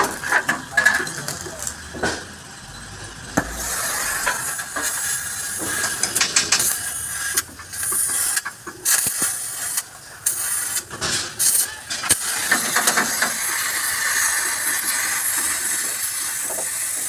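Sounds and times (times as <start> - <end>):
hissing bursts: 3.4 - 17.0.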